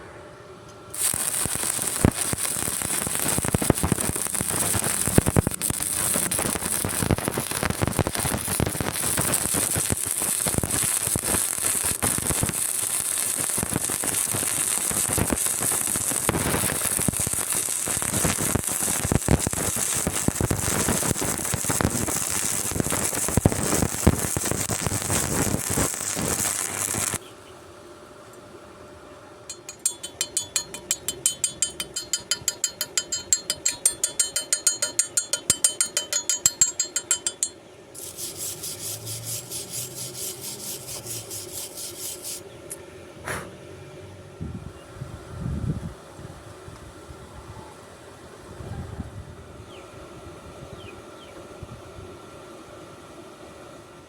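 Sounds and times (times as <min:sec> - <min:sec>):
arc welding crackling sizzle: 0:00.9 - 0:27.3, 0:38.0 - 0:42.6.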